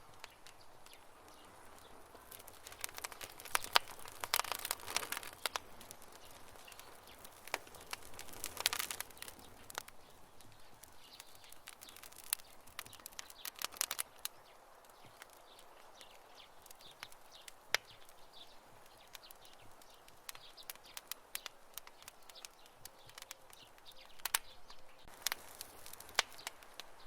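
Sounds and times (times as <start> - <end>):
campfire crackling: 0.0 - 27.0
faint steady hiss: 0.0 - 27.0.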